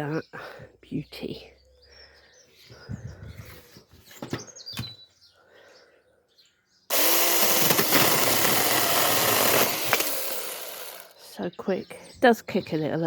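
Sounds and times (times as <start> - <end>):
mini chainsaw buzzing: 6.9 - 11.2.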